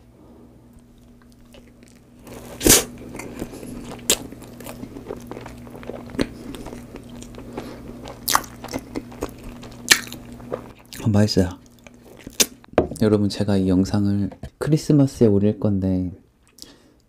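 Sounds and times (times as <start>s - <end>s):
faint low hum: 0.0s - 17.0s
wet chewing with mouth smacks: 3.4s - 11.0s.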